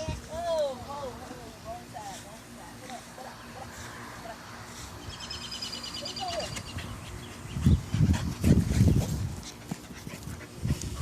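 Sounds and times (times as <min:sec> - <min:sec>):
puppy breathing heavily: 0:06.3 - 0:11.0.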